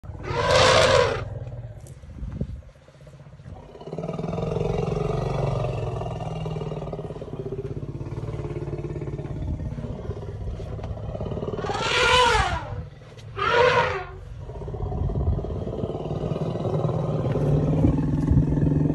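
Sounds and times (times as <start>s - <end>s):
elephant low rumble: 0.0s - 18.9s
elephant trumpeting: 0.2s - 1.3s, 11.6s - 12.8s, 13.4s - 14.2s.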